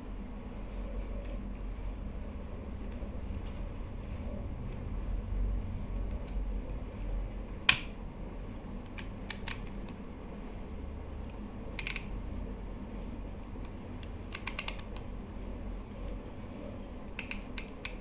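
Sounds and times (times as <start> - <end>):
low steady hum: 0.0 - 18.0
clicks of small hard parts: 11.8 - 12.1, 17.2 - 18.0.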